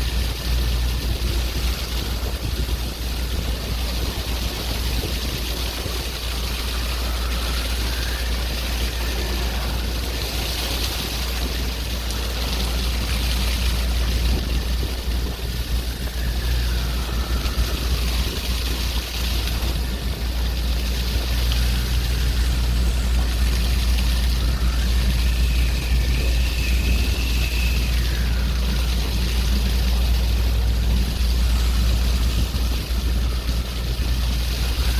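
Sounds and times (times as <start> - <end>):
low engine drone: 0.0 - 34.9
waves washing: 0.0 - 34.9
faint whistles: 15.5 - 18.3, 21.5 - 30.3.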